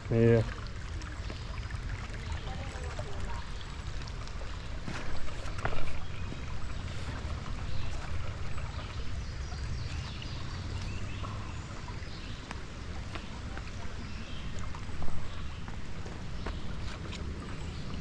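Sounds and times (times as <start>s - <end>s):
creek water running over rocks: 0.0s - 18.0s.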